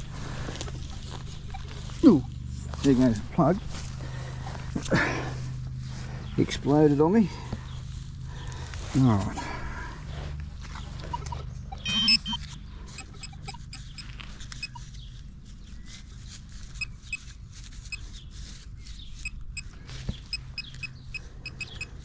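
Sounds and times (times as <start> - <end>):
soil crumbling by hand: 0.0 - 6.2
grass roots rustling: 0.0 - 22.0.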